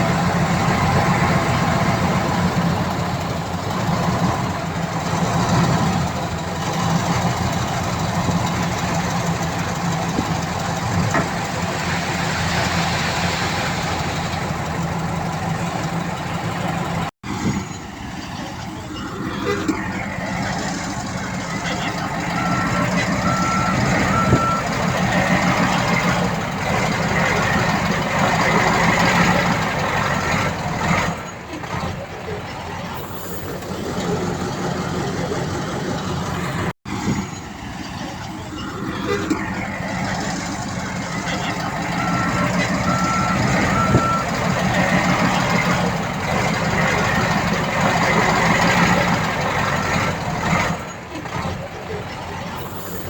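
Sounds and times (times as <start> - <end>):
diesel machinery engine: 0.0 - 53.0
reversing alarm beeps: 21.8 - 24.8, 41.4 - 44.4.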